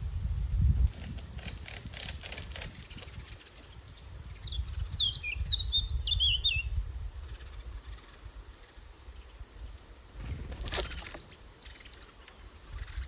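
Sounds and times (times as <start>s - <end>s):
crackling rustles: 0.9s - 3.8s, 9.7s - 13.0s
songbird warbling: 2.8s - 13.0s.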